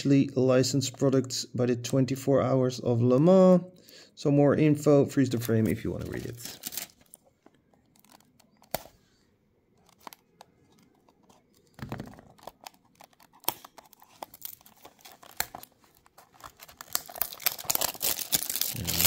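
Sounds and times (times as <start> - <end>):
packaging rustling and crinkling: 5.4 - 9.0, 9.8 - 19.0.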